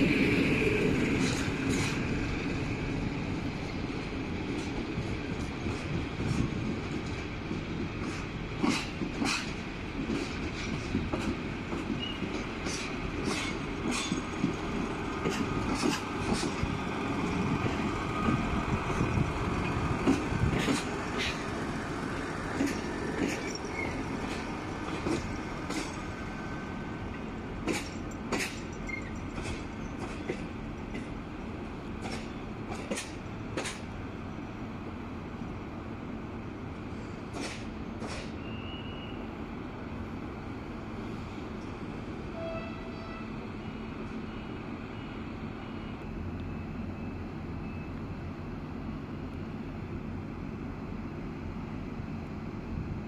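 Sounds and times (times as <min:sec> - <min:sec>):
train running noise: 0:00.0 - 0:53.0
wheels clicking over rail joints: 0:04.5 - 0:16.7, 0:19.6 - 0:21.4, 0:22.5 - 0:26.1, 0:27.1 - 0:31.2, 0:32.0 - 0:33.9.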